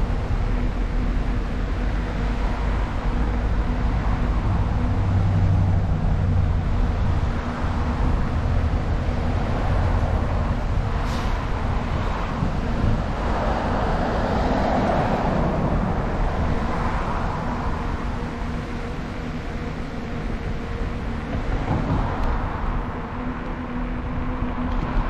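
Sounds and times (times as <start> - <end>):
bicycle road noise: 0.0 - 25.0
wind rumble on microphone: 0.0 - 25.0.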